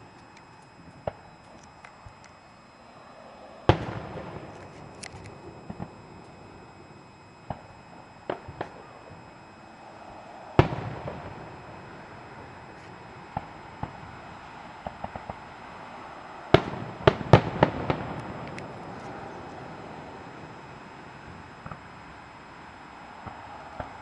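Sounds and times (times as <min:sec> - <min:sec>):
small firework pops and cracks: 0:00.1 - 0:02.4, 0:03.7 - 0:09.5, 0:10.6 - 0:11.4, 0:14.8 - 0:15.4, 0:16.5 - 0:19.7, 0:21.3 - 0:21.9
firework shells booming: 0:03.7 - 0:09.3, 0:10.5 - 0:15.5, 0:16.5 - 0:20.1.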